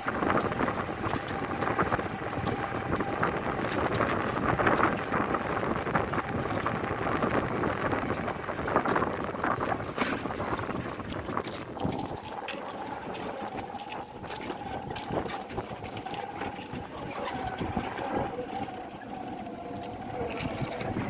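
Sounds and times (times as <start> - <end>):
outdoor background noise: 0.0 - 21.0
distant motor humming: 9.8 - 21.0.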